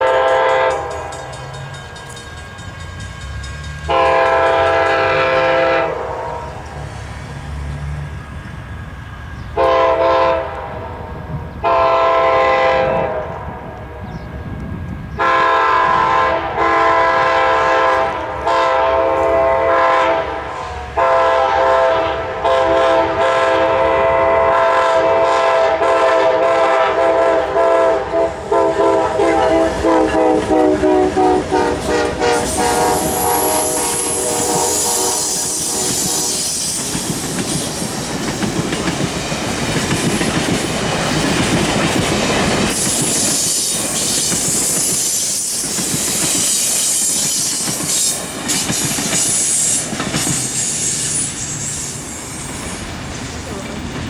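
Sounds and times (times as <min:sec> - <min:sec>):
train air horn blasts: 0:00.0 - 0:01.7, 0:03.8 - 0:06.9, 0:09.6 - 0:14.1, 0:15.2 - 0:37.2, 0:42.7 - 0:52.1
train low rumble: 0:00.0 - 0:54.0.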